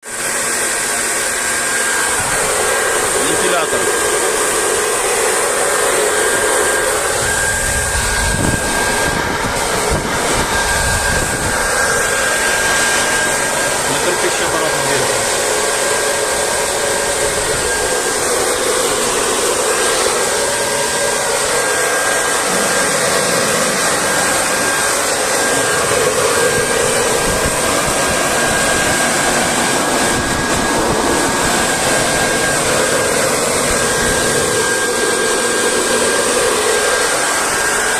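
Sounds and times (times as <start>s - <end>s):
fan air rush with whine: 0.0s - 37.9s.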